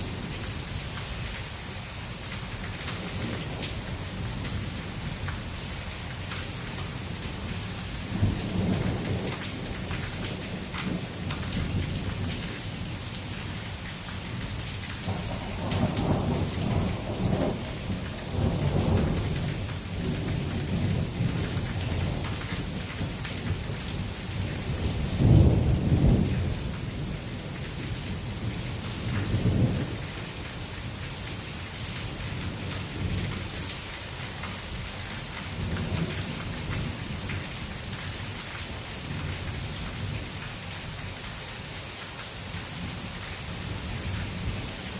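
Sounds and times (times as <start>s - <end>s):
heavy rain falling: 0.0s - 44.9s
thunder rumbling: 15.0s - 30.0s.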